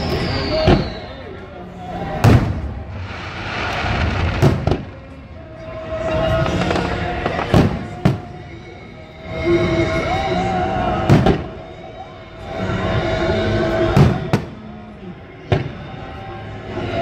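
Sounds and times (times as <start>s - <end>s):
fireworks shells booming: 2.2s - 5.2s.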